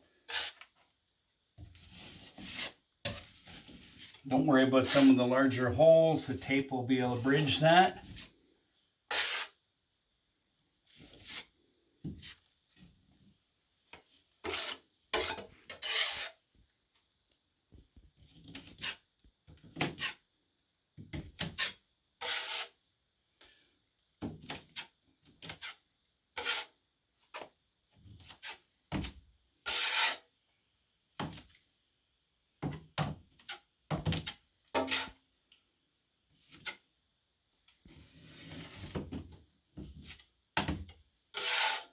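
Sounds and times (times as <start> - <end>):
trowel scraping joint compound: 0.2 - 0.8, 1.6 - 5.6, 6.4 - 8.3, 9.1 - 9.6, 14.4 - 16.5, 21.4 - 22.8, 26.4 - 27.5, 29.6 - 30.3, 33.3 - 35.2, 41.3 - 41.9.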